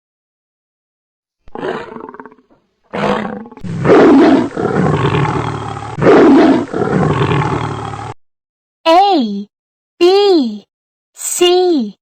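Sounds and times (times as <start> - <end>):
tiger roaring: 1.5 - 8.2
tiger snarl: 1.5 - 8.2
low rumbling: 3.6 - 8.2.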